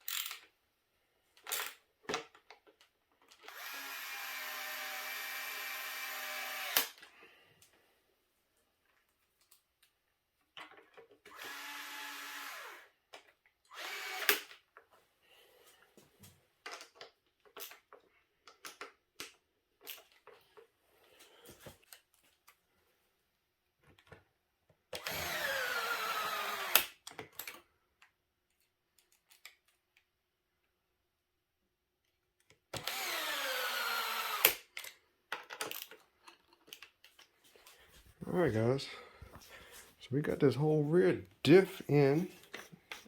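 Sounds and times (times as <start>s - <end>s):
small parts and tools clicking: 0.0s - 0.6s, 1.3s - 3.9s, 16.6s - 20.7s, 24.9s - 30.1s, 34.2s - 38.0s
power drill driving screws: 3.4s - 7.0s, 11.3s - 12.9s, 13.7s - 14.6s, 25.0s - 27.0s, 32.7s - 34.7s.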